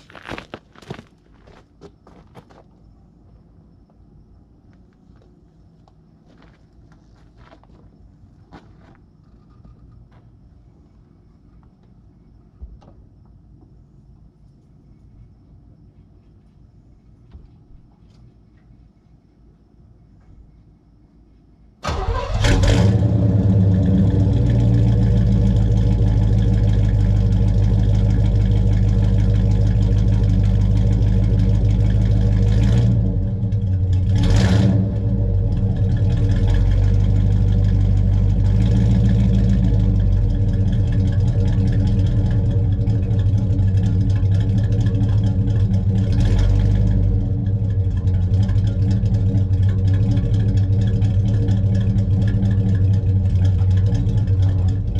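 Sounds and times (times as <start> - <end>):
car engine starting and idling: 21.8 - 54.9.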